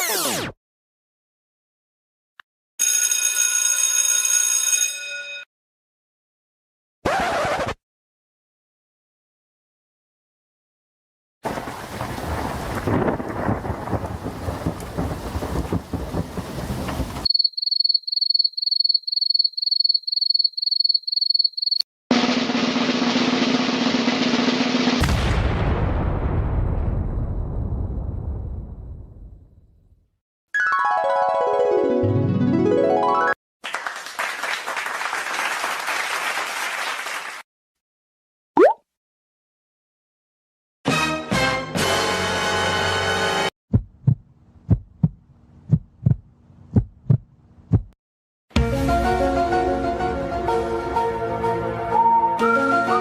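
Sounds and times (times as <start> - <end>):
dense rumbling noise: 11.5 - 17.3
crowd applause: 33.6 - 37.4.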